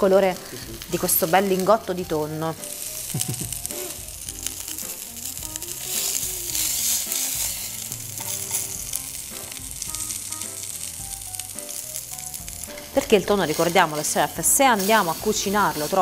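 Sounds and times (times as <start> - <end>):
fish sizzling in hot pan: 0.0 - 16.0.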